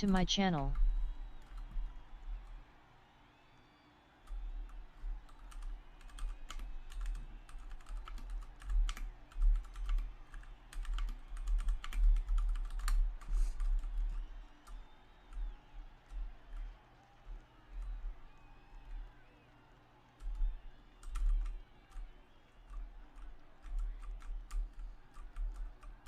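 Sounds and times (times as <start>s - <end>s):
rapid irregular clicking: 4.3s - 19.1s, 20.2s - 26.0s.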